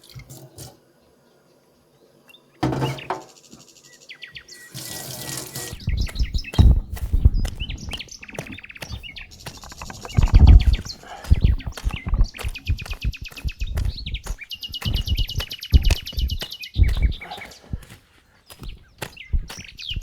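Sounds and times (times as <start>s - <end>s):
songbirds trilling and chirping: 0.0s - 20.0s
dull low thumps: 5.8s - 20.0s.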